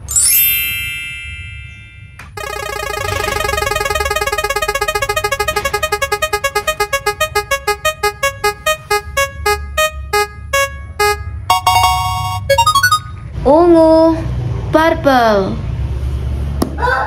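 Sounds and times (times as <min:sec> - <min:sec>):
spin wheel electronic ticks: 0:02.4 - 0:13.0.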